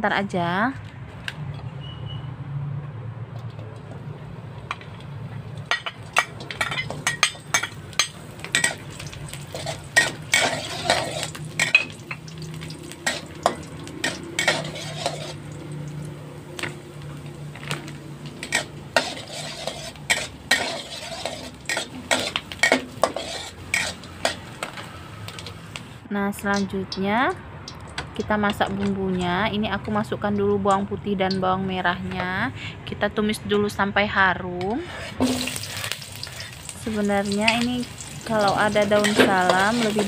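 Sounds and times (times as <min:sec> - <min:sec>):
beans frying in oil: 0:03.4 - 0:31.4, 0:35.2 - 0:40.0
spatula scraping a wok: 0:06.4 - 0:15.6, 0:17.6 - 0:25.5, 0:34.8 - 0:36.7, 0:37.9 - 0:40.0.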